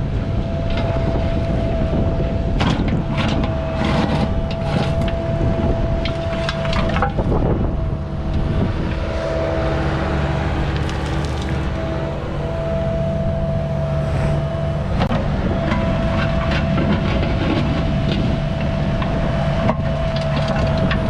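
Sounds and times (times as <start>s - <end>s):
diesel engine under load: 0.0s - 21.0s
hydraulic whine: 0.0s - 21.0s
bucket scraping through ground: 10.4s - 12.0s.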